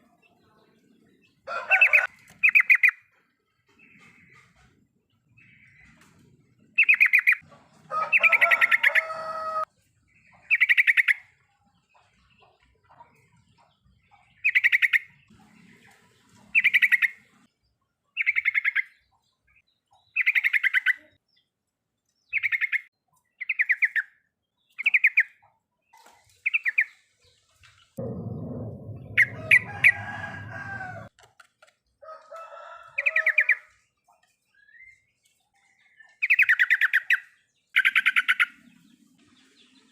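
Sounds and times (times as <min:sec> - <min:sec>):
low noise burst: 0:28.0 - 0:31.1.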